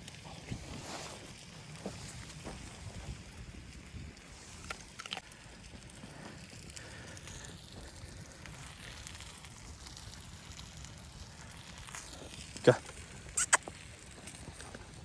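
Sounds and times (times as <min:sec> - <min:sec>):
sharp crackles: 0:00.0 - 0:15.0.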